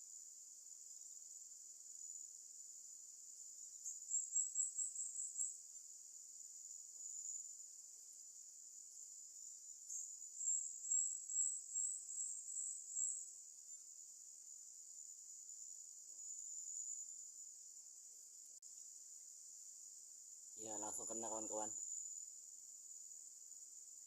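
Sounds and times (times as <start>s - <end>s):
insects droning: 0.0s - 24.0s
quick insect pulses: 6.6s - 24.0s.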